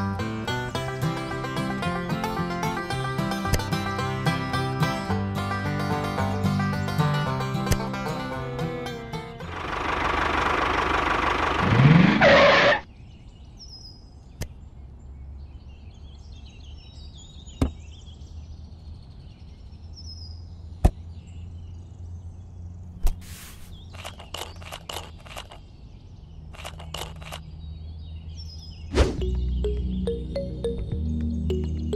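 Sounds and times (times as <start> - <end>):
birds chirping: 11.7 - 31.9
sharp clicks: 23.8 - 25.7, 26.5 - 27.5.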